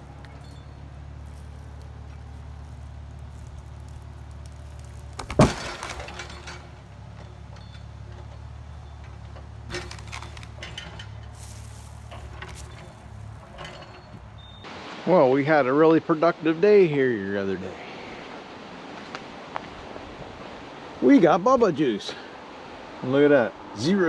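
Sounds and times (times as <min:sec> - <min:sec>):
tree limbs cracking: 0:00.0 - 0:14.6
clinks: 0:00.0 - 0:14.7
excavator diesel engine running: 0:00.0 - 0:14.7.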